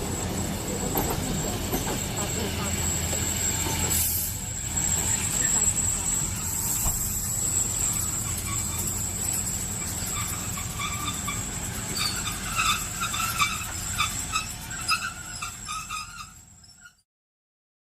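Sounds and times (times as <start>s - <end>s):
model train motor hum and whine: 0.0s - 17.0s
wheels clicking and squeaking: 0.0s - 17.0s.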